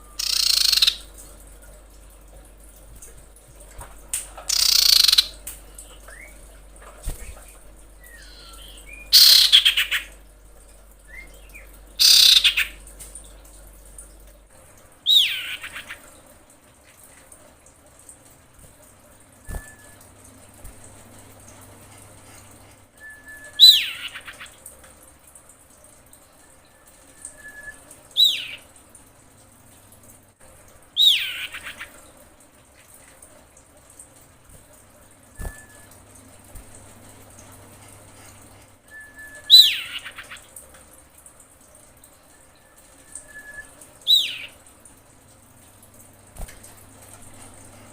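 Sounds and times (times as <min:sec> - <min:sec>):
bird whistled calls: 0:00.0 - 0:01.0, 0:04.5 - 0:05.3, 0:08.0 - 0:10.0, 0:11.1 - 0:12.6, 0:23.0 - 0:24.4, 0:27.1 - 0:28.6, 0:38.9 - 0:40.2, 0:43.1 - 0:44.5
bird harsh calls: 0:00.2 - 0:01.1, 0:04.5 - 0:05.4, 0:08.0 - 0:10.2, 0:12.0 - 0:12.8, 0:15.1 - 0:16.1.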